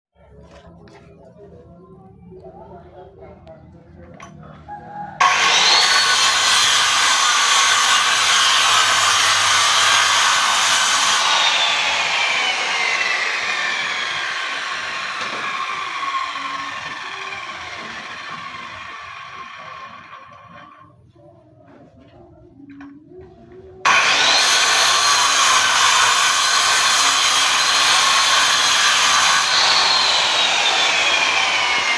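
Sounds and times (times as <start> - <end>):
saw whine: 5.2 - 20.7, 23.9 - 31.9
power saw cutting wood: 5.2 - 20.8, 23.8 - 31.9.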